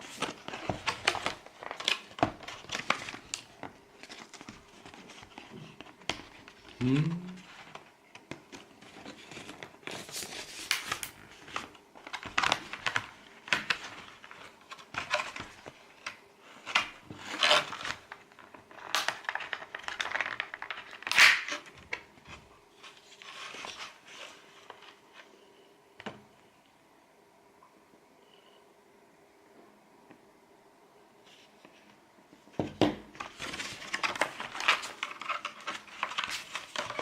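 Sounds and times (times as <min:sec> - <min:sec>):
packaging crinkling and rustling: 0:00.0 - 0:25.3, 0:33.1 - 0:37.0.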